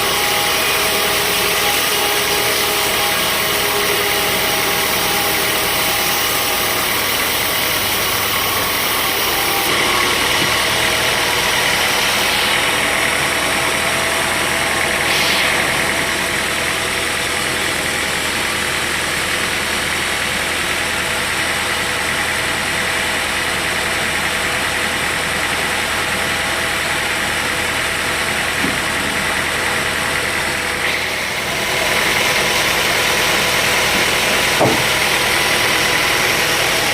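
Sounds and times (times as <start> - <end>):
sawmill machinery running: 0.0 - 36.9.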